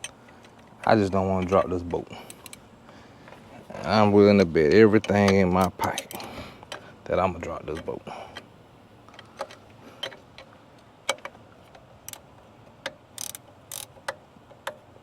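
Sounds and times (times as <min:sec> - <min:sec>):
ratchet wrench clicking: 0:02.2 - 0:02.6, 0:05.0 - 0:06.8, 0:12.0 - 0:12.2, 0:12.8 - 0:14.8.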